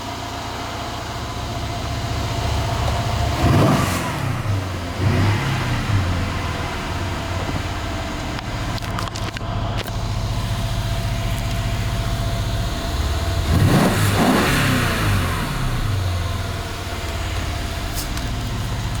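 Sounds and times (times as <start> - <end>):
car engine idling: 0.0 - 19.0
engine throttle blip: 2.8 - 10.4.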